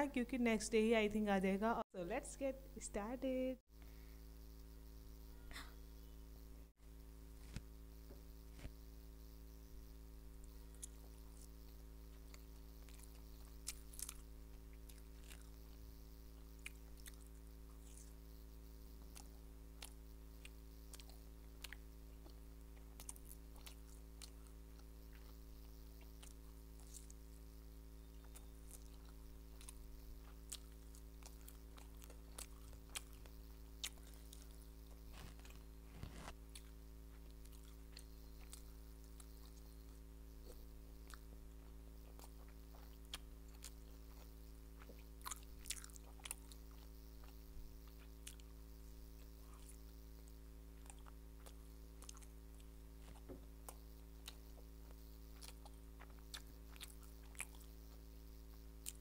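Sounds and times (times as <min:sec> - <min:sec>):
electrical hum: 0:00.0 - 0:59.0
crunchy bites: 0:10.4 - 0:18.2, 0:19.0 - 0:27.4, 0:28.1 - 0:48.6, 0:49.2 - 0:58.0, 0:58.7 - 0:59.0
person chewing: 0:10.5 - 0:15.8, 0:16.4 - 0:18.2, 0:19.0 - 0:25.4, 0:26.0 - 0:27.3, 0:28.1 - 0:48.6, 0:49.2 - 0:58.0, 0:58.8 - 0:59.0.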